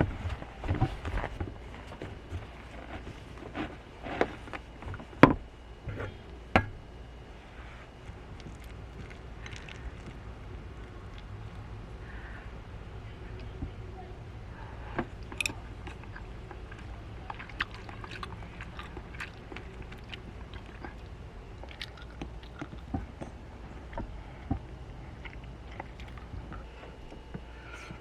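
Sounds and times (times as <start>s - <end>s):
steady low hum: 0.0s - 28.0s
small clicks and crunches: 8.0s - 11.7s, 15.0s - 27.4s.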